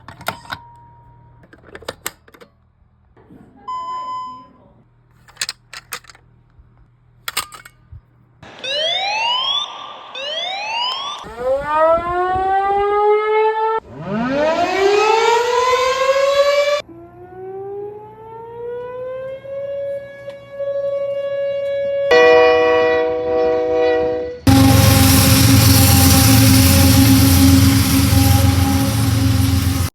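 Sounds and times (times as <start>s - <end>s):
rising siren wail: 8.4s - 29.9s
many-toned horn chord: 22.1s - 29.9s.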